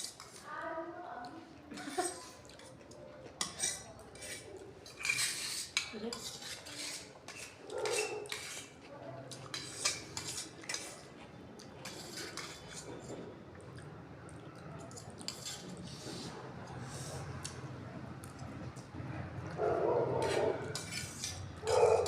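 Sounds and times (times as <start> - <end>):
cutlery clinking and scraping plates: 0.0 - 0.4, 1.7 - 13.4, 14.8 - 17.2, 20.1 - 22.0.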